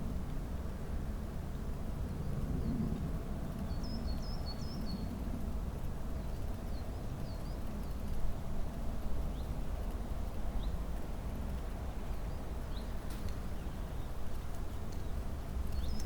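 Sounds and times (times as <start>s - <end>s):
small songbirds chirping: 3.6s - 5.3s, 6.1s - 16.0s.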